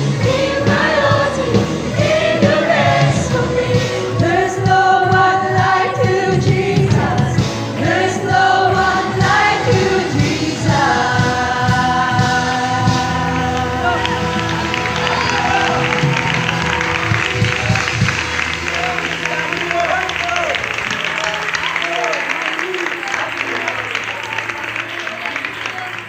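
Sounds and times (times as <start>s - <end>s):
youth choir singing gospel: 0.0s - 20.5s
musical accompaniment: 0.0s - 26.0s.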